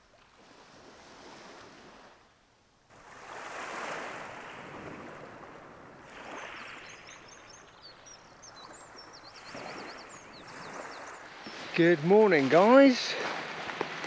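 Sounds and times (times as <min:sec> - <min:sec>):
waves washing onto shore: 0:02.9 - 0:14.0
songbird chirping: 0:06.1 - 0:14.0.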